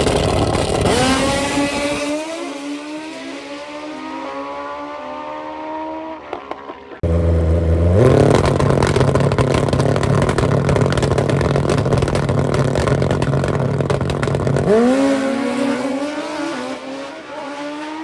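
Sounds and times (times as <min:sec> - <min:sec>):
motorcycle accelerating hard: 0:00.0 - 0:18.0
engine revving up close: 0:00.6 - 0:06.3, 0:07.0 - 0:08.7, 0:14.6 - 0:18.0.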